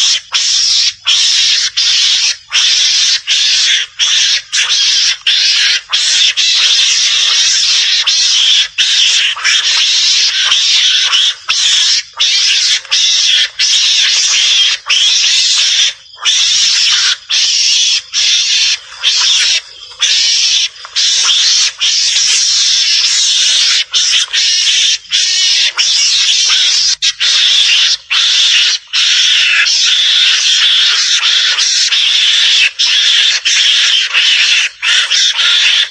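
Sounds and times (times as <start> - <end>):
mongoose hissing chatter: 0.0 - 35.9.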